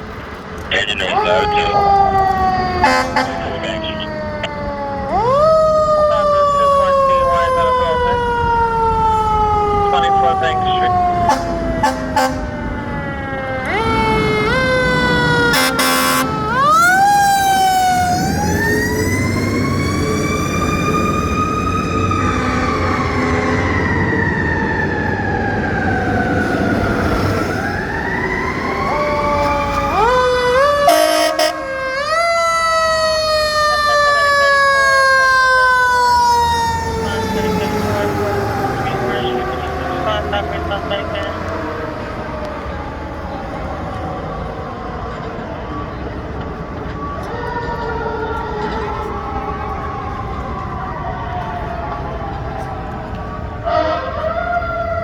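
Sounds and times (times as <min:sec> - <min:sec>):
air horn blasts: 0:02.8 - 0:03.9, 0:11.2 - 0:12.5, 0:15.5 - 0:16.6, 0:30.8 - 0:31.8, 0:53.7 - 0:54.2.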